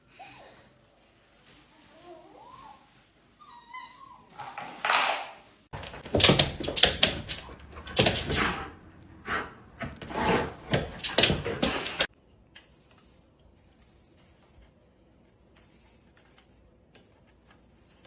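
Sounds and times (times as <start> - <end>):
dog whimpering: 3.4 - 4.4.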